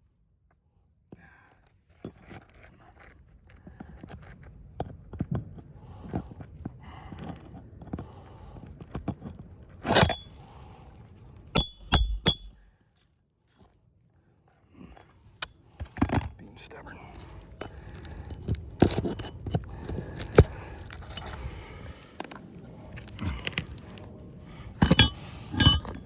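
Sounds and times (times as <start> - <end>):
hammer striking metal nail: 11.6 - 12.9.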